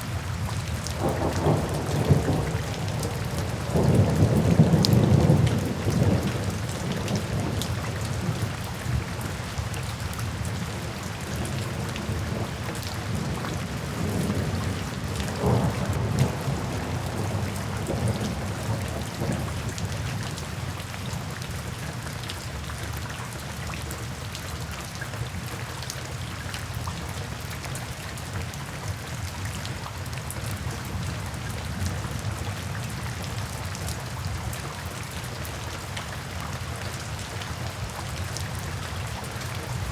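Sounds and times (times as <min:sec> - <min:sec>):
steady rain falling: 0:00.0 - 0:39.9
thunder rumbling: 0:00.9 - 0:09.3, 0:11.2 - 0:20.0.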